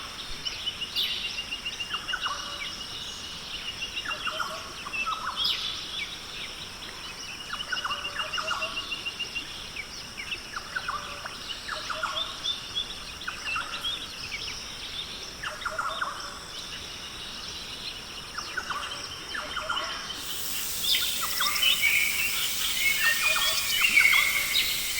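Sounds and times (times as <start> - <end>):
bird song chorus: 20.1 - 24.9
downward-sweeping bird calls: 20.2 - 24.9
high bird trills: 20.2 - 24.9.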